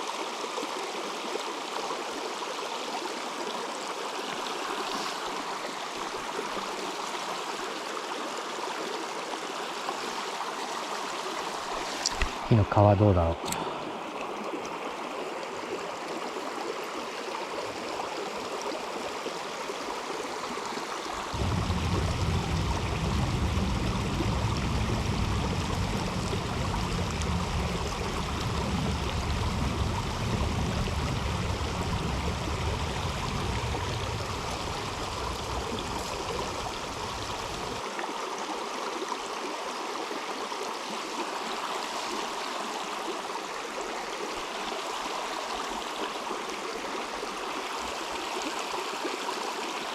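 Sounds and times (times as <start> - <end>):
river water flowing: 0.0 - 49.9
low rumble: 21.2 - 37.8.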